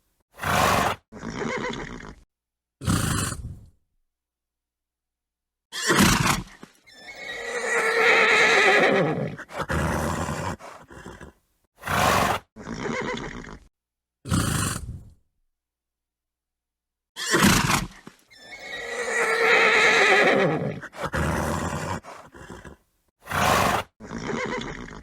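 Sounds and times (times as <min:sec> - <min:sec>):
horse snorting: 0:00.4 - 0:02.2, 0:02.8 - 0:03.7, 0:05.9 - 0:13.7, 0:14.3 - 0:15.2, 0:17.2 - 0:25.0
horse whinnying: 0:00.4 - 0:02.2, 0:05.7 - 0:13.7, 0:17.2 - 0:25.0.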